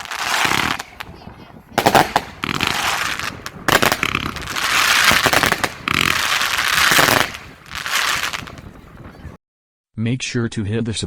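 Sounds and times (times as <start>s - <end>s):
firework battery firing with crackling: 0.0s - 8.7s.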